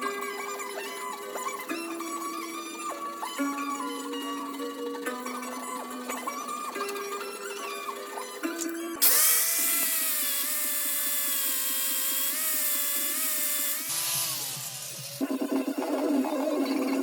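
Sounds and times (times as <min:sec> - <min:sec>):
power tool whining: 0:09.0 - 0:15.3.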